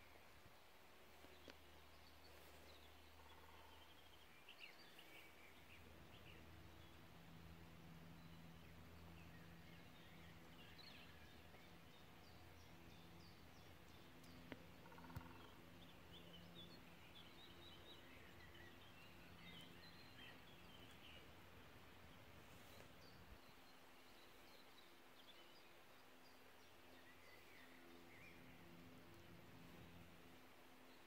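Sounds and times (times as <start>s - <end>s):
low steady hum: 0.0s - 31.0s
distant birds calling: 2.3s - 5.2s, 9.0s - 24.7s.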